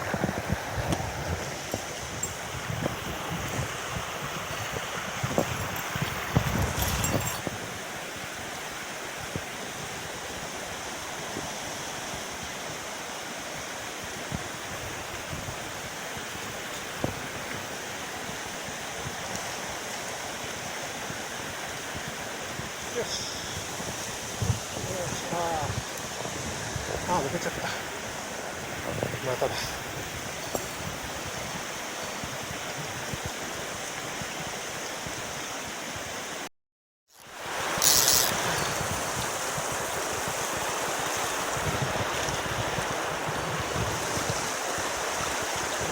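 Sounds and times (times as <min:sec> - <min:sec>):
water rushing over rocks: 0:00.0 - 0:36.5, 0:37.2 - 0:45.9.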